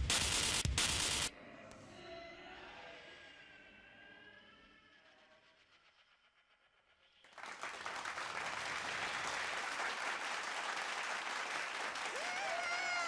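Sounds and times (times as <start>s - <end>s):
audience applause: 7.3s - 13.0s
person whooping: 12.0s - 13.0s.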